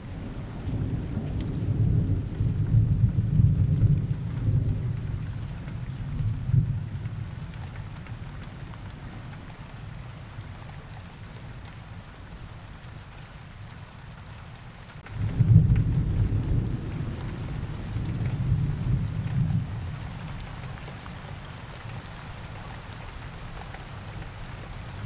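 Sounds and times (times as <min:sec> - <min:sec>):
rain falling: 0:00.0 - 0:25.0
thunder rumbling: 0:15.1 - 0:20.3.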